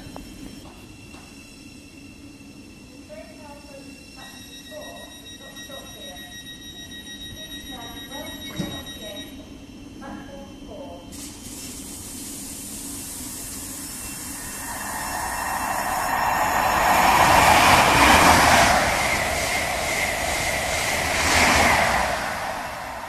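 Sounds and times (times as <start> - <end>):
train passing at speed: 12.3 - 23.0.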